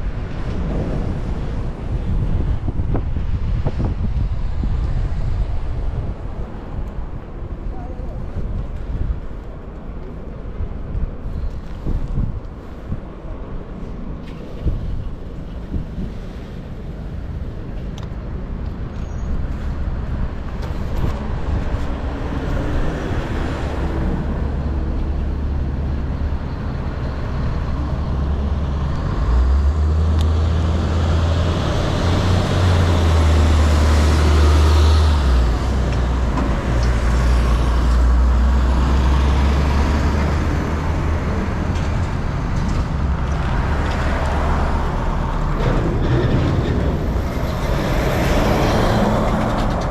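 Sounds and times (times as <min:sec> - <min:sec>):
cars and trucks passing: 0:00.0 - 0:49.9
heavy low rumble: 0:00.0 - 0:49.9.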